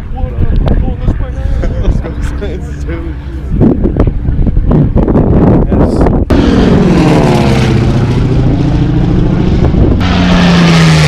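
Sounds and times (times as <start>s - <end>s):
propeller plane flying past: 1.2s - 5.3s, 6.3s - 11.0s
rush of engine and air: 2.9s - 11.0s.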